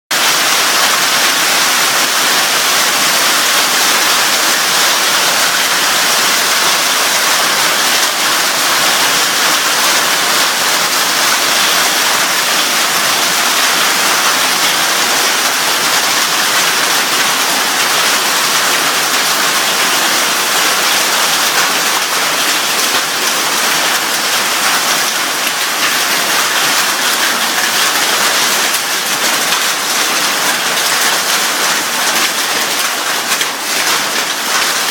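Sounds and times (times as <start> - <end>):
heavy hail and rain: 0.1 - 34.9.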